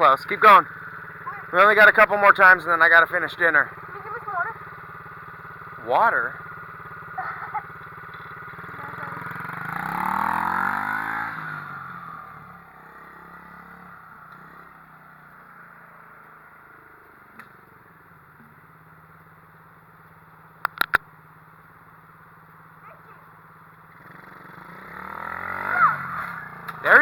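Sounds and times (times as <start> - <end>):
pit bike engine revving: 0.0 - 18.0, 22.8 - 27.0
sharp clicks: 20.6 - 21.1.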